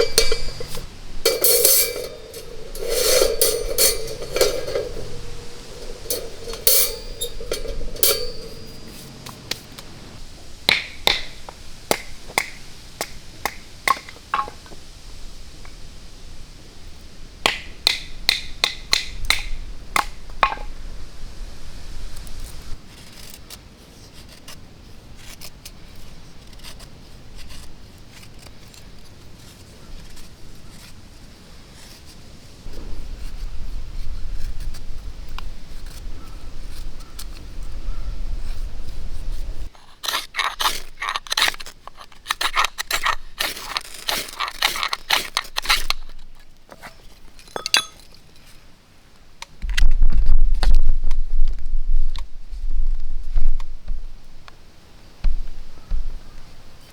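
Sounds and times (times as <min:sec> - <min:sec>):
light clicks and scrapes: 0:00.0 - 0:10.2, 0:22.2 - 0:48.6
ringing clink: 0:00.0 - 0:10.2, 0:47.6 - 0:48.0.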